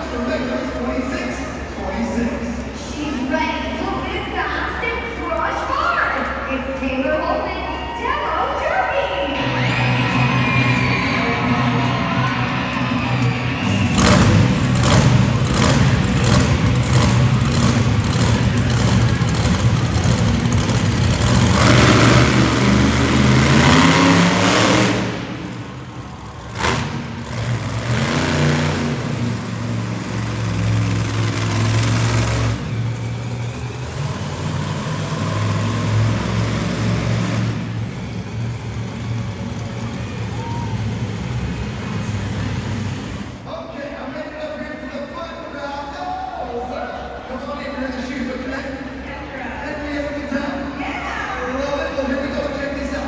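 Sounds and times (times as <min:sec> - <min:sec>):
monster truck engine revving: 0:09.2 - 0:43.5.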